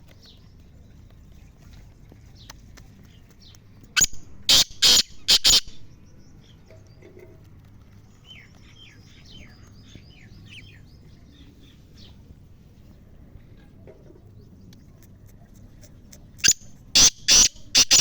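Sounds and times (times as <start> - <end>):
small birds chirping: 2.2 - 13.0, 14.2 - 18.0
bird harsh call: 4.0 - 5.8, 16.4 - 18.0.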